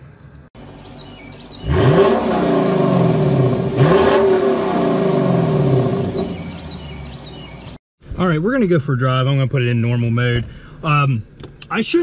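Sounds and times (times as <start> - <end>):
car engine revving: 0.6 - 7.8.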